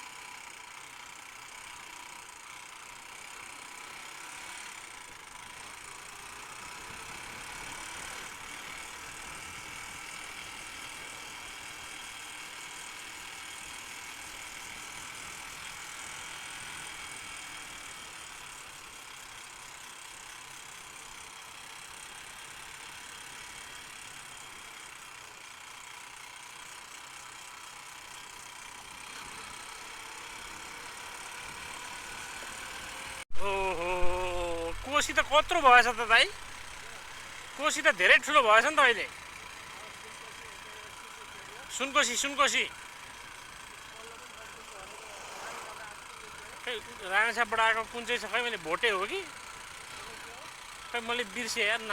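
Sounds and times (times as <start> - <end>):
motorcycle engine drone: 28.0 - 51.9
road noise: 33.3 - 38.3.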